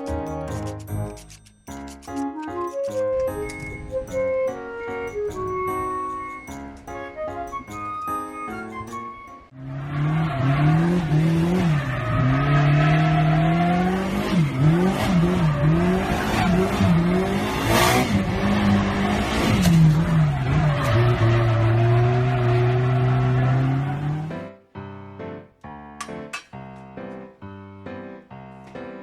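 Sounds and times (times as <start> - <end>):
car engine revving: 9.6 - 24.3
tyre noise from drifting: 9.9 - 24.3.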